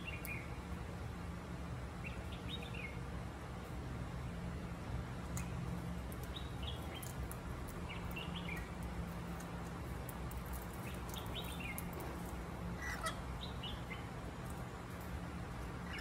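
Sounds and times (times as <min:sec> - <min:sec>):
birds chirping: 0:00.0 - 0:00.7, 0:02.0 - 0:03.1, 0:05.4 - 0:09.4, 0:10.0 - 0:16.0
steady low hum: 0:00.0 - 0:16.0.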